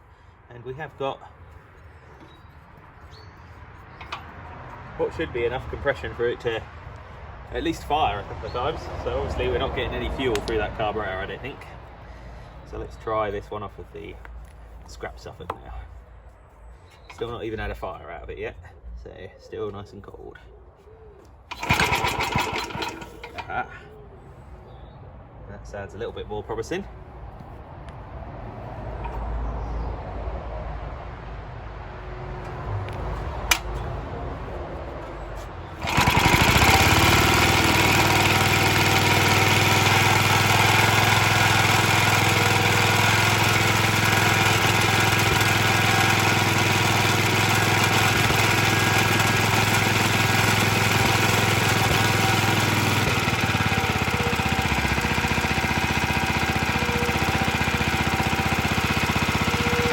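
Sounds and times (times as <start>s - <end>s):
small engine running rattly: 4.0s - 4.3s, 21.5s - 23.8s, 35.8s - 59.9s.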